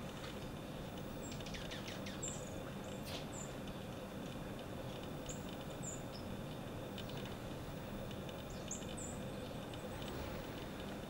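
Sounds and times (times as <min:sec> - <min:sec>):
low outdoor rumble: 0:00.0 - 0:11.0
small bird chirping: 0:01.2 - 0:03.6, 0:05.2 - 0:06.4, 0:08.4 - 0:10.2.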